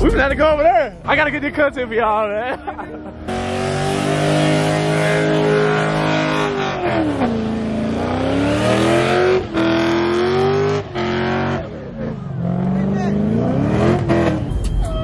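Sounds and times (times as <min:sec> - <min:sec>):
car engine at high revs: 0:02.9 - 0:14.7.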